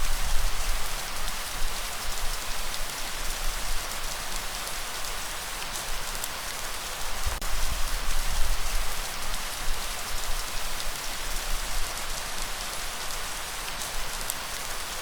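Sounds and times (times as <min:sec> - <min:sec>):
raindrops pattering: 0:00.0 - 0:15.0
steady rain hiss: 0:00.0 - 0:15.0.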